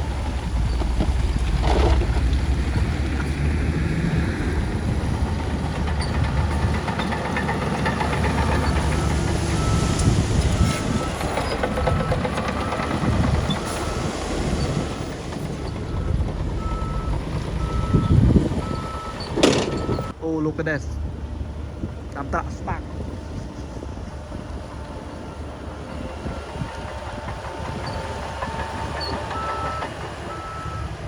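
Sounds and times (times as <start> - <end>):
diesel engine under load: 0.0 - 31.0
reversing alarm beeping: 15.7 - 20.2, 28.7 - 30.9
metallic clanking: 18.7 - 20.2.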